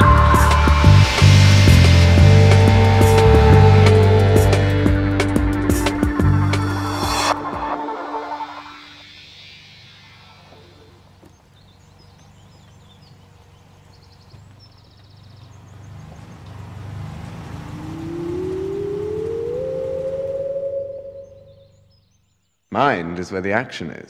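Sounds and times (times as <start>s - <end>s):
car engine rumbling: 0.0s - 7.4s, 9.1s - 21.7s
birds chirping faintly: 9.0s - 23.5s.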